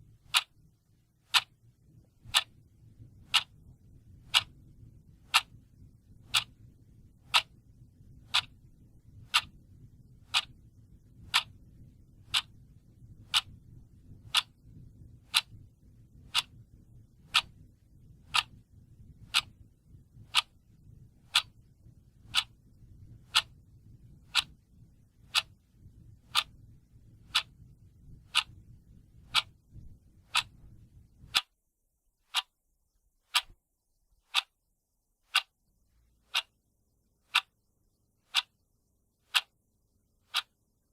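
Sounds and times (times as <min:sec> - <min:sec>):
clock ticking: 0:00.0 - 0:31.6, 0:32.3 - 0:32.6, 0:33.3 - 0:33.6, 0:34.2 - 0:34.6, 0:35.3 - 0:40.7
faint low background noise: 0:00.0 - 0:40.9.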